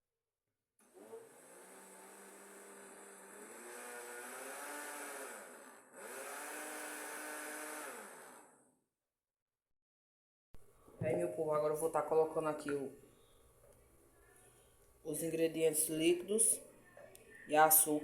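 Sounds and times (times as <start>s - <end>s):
blender motor running: 0.8s - 8.7s.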